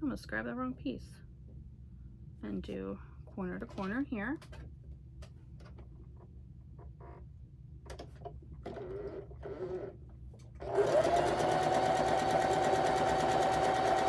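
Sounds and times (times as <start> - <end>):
electric sewing machine running: 8.7 - 10.0, 10.6 - 14.0.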